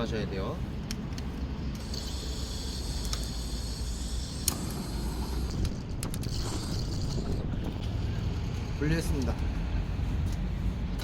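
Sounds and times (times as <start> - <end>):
gas torch hissing: 1.8 - 8.8.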